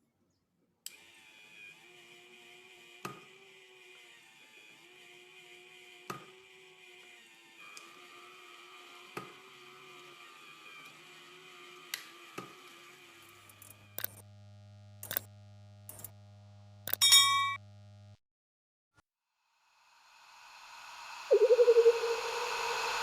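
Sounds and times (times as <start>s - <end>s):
sharp clicks: 14.0s - 14.2s, 15.0s - 15.3s
faint steady hum: 19.8s - 23.0s
lower hum: 20.2s - 23.0s.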